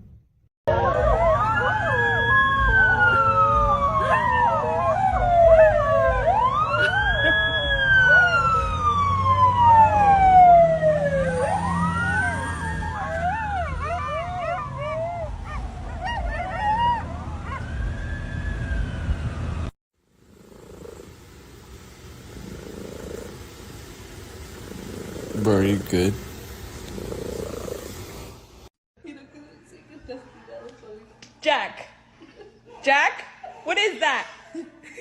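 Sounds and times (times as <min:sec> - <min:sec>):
emergency siren wailing: 0:00.7 - 0:19.7.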